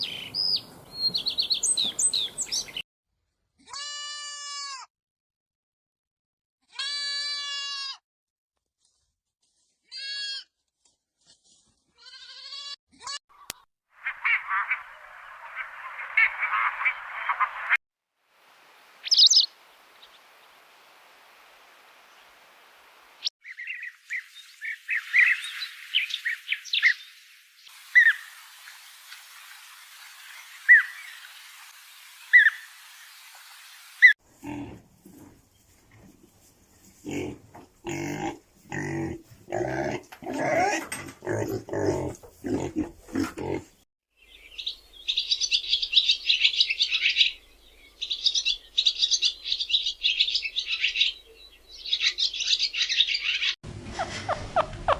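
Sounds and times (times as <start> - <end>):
light hiss: 24.1 - 34.1
chorus of chirping: 44.2 - 53.6.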